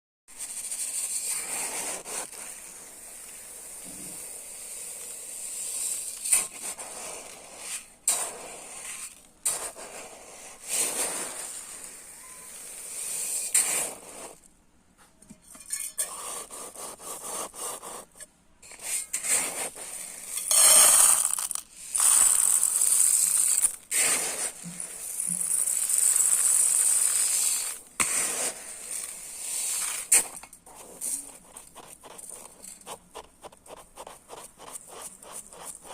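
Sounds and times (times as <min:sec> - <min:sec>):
scoop scraping container: 0:00.4 - 0:14.4, 0:15.5 - 0:18.0, 0:18.7 - 0:35.9
rice grains pouring: 0:19.2 - 0:30.3.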